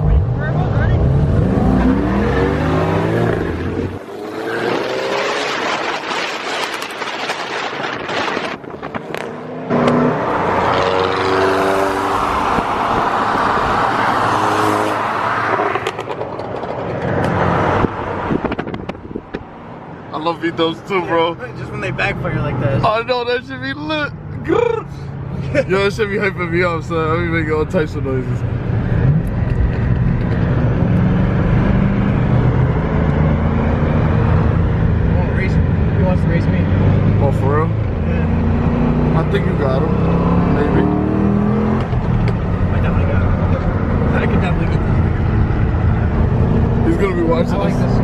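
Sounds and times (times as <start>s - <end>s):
car engine revving: 0.0s - 19.2s, 24.2s - 48.0s
exhaust pops: 18.3s - 19.5s.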